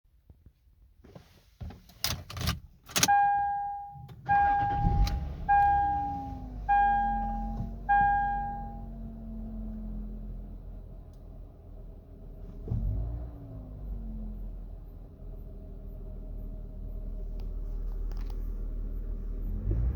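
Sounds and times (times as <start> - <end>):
car engine cranking and idling: 0.2 - 19.9
clicks and clunks: 1.1 - 3.2
dashboard warning chime: 3.0 - 9.0.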